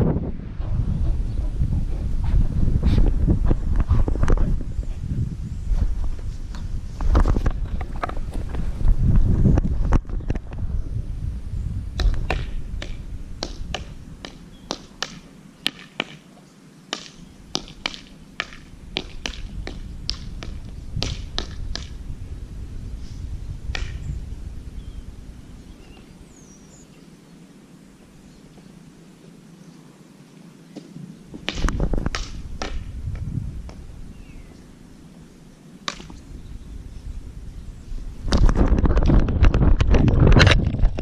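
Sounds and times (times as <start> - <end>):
wind on microphone: 0.0 - 14.7, 18.6 - 26.9, 31.3 - 35.2, 35.9 - 41.0.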